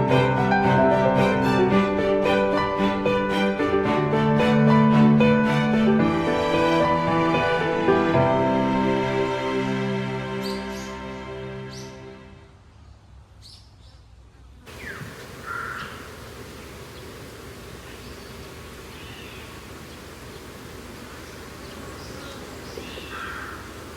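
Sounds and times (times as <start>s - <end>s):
steady hiss: 14.7s - 23.9s
crow caws: 15.4s - 16.1s, 22.8s - 23.8s.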